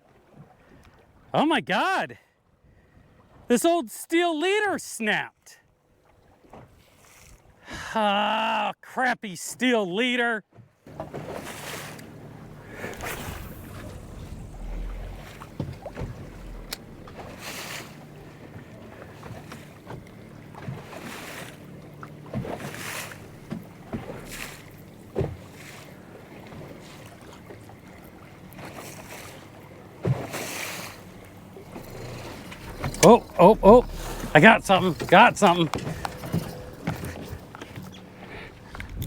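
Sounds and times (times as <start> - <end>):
waves lapping against boat hull: 5.9 - 7.6, 10.5 - 39.0
wind buffeting microphone: 10.9 - 27.0, 27.9 - 39.0.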